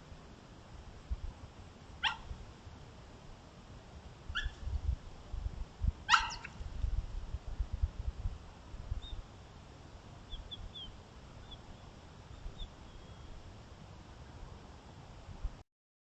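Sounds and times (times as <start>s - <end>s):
coyote barking: 2.0s - 2.3s, 4.3s - 4.6s, 6.1s - 6.6s.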